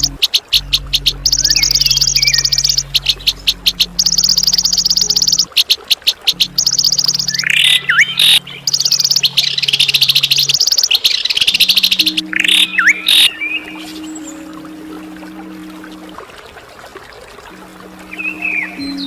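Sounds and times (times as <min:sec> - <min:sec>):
steady low hum: 0:00.0 - 0:05.6
songbird trilling: 0:00.0 - 0:14.2.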